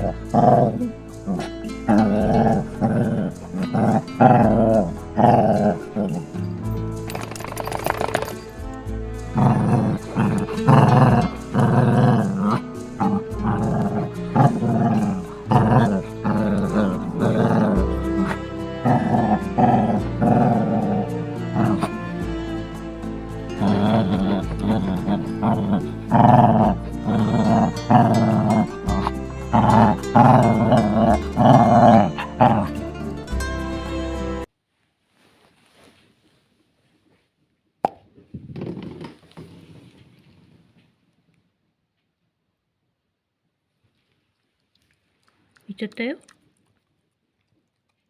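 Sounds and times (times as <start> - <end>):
dog growling: 0.0 - 8.6, 9.2 - 34.5
background music: 0.0 - 34.5.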